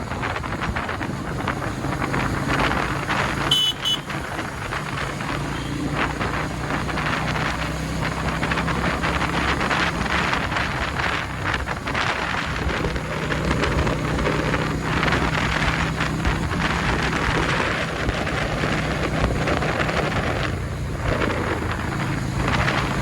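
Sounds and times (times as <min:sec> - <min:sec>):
motorcycle engine running: 0:00.0 - 0:23.0
wind buffeting microphone: 0:00.0 - 0:23.0.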